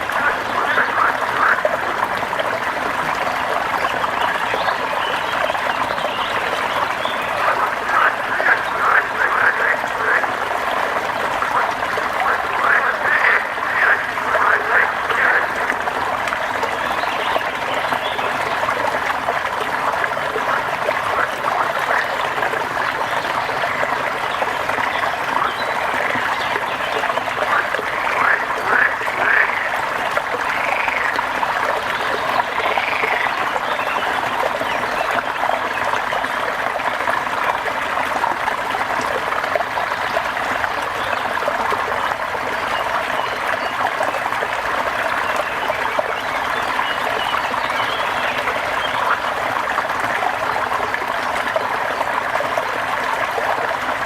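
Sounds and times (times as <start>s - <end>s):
frogs calling: 0.0s - 36.5s
water flowing: 0.0s - 54.0s.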